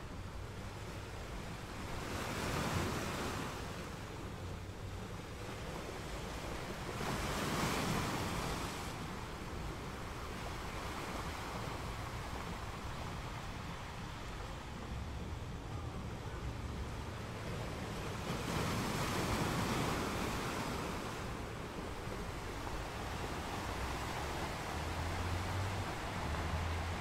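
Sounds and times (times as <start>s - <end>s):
rush of moving water: 0.0s - 27.0s.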